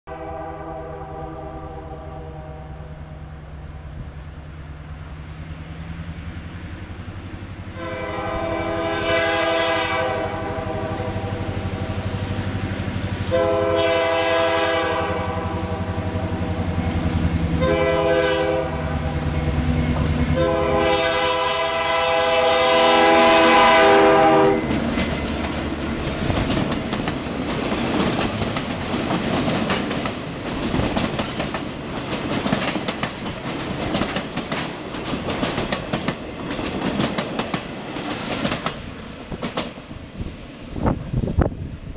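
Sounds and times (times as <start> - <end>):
locomotive air horn: 0.0 - 3.2, 7.7 - 11.5, 13.2 - 16.4, 17.6 - 19.3, 20.2 - 24.8
train wheels clattering over rail joints: 24.6 - 40.2.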